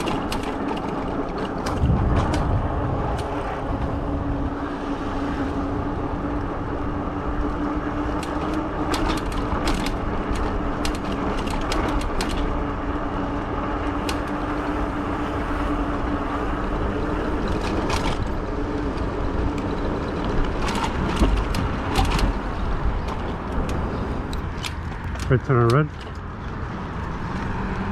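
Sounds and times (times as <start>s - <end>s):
sharp clicks and knocks: 0.0s - 3.9s, 8.1s - 12.5s, 17.4s - 26.6s
wind on microphone: 0.0s - 25.0s
e-bike motor hum: 0.0s - 27.9s
road rumble: 0.0s - 27.9s.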